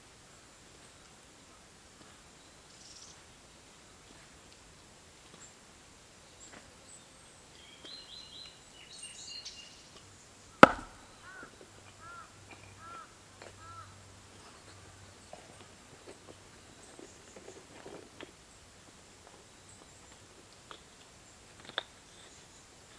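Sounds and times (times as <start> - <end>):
wild birds calling: 10.4 - 15.4
sharp knock: 10.6 - 11.0.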